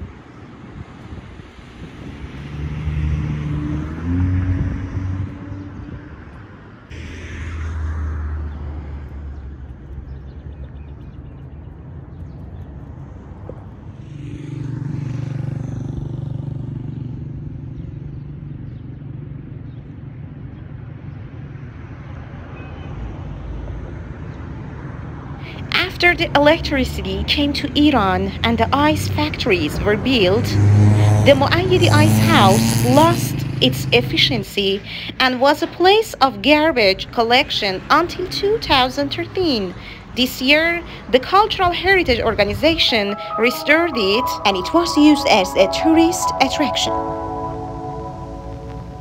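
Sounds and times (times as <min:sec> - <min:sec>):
background traffic rumble: 0:00.0 - 0:49.0
vehicle engines passing: 0:00.0 - 0:49.0
low engine note: 0:06.9 - 0:10.4, 0:27.9 - 0:34.4, 0:41.9 - 0:49.0.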